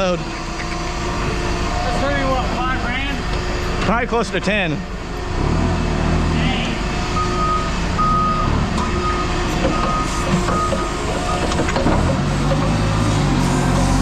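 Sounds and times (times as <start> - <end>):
truck engine rumble: 0.0 - 14.0
truck backup alarm beeping: 6.7 - 14.0.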